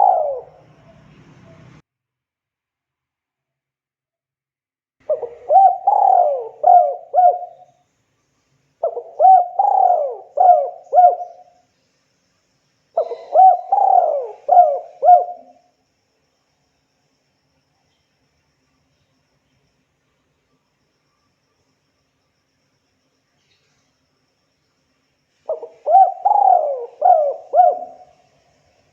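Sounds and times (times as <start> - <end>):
dove cooing: 0.0 - 1.7, 5.0 - 7.7, 8.8 - 11.6, 13.0 - 15.7, 25.5 - 28.3.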